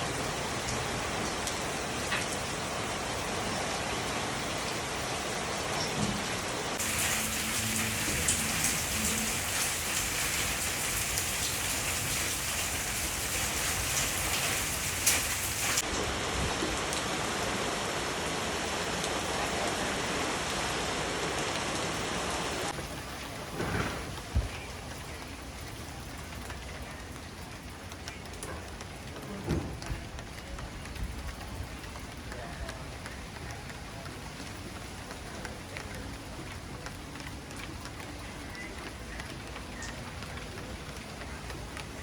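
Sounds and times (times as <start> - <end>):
steady rain hissing: 0.0 - 42.0
raindrops spattering: 6.2 - 17.0, 22.7 - 42.0.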